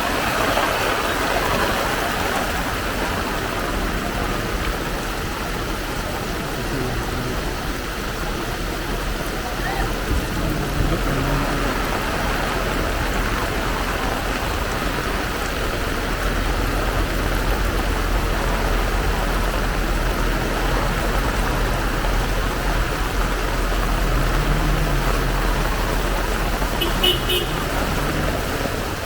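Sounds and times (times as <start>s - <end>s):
heavy rain pouring: 0.0s - 29.0s
low rumble: 9.9s - 29.0s.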